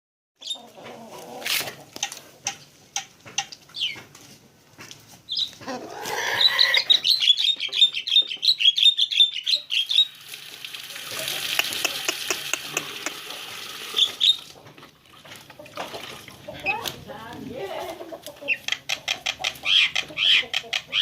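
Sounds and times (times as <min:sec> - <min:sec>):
songbird chirping: 0:03.4 - 0:04.1, 0:05.2 - 0:10.2.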